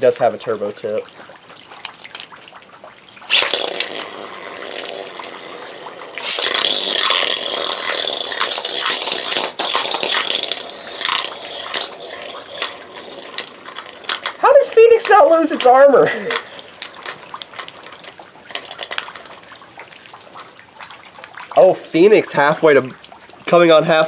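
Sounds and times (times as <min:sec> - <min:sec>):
spinning tops launched: 0:03.3 - 0:17.7
steady hiss: 0:03.3 - 0:19.3
spinning tops clashing: 0:06.2 - 0:14.4.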